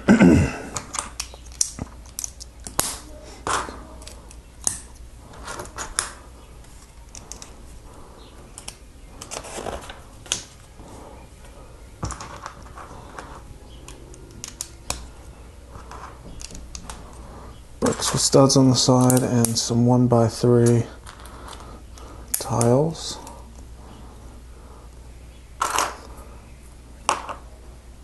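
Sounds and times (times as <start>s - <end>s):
plastic bricks clicking together: 0.8s - 4.9s.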